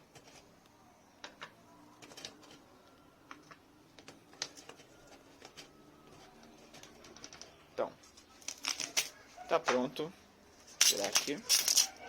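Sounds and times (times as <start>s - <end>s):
small stones clicking together: 8.4s - 9.1s, 10.8s - 12.0s.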